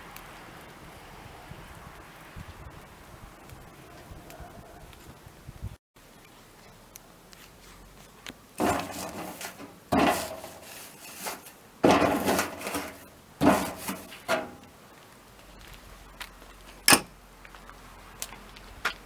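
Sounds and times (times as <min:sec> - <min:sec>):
firewood rubbing and scraping: 0:06.4 - 0:17.2.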